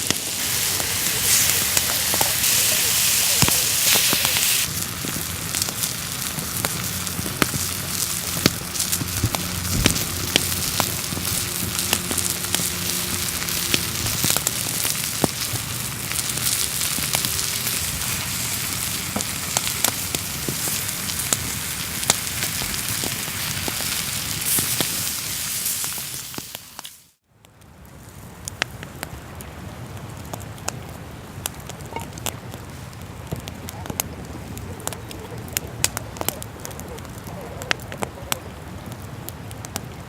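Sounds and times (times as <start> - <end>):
steady hiss of grilling: 0.0 - 27.2
wood fire crackling and popping: 0.0 - 40.0.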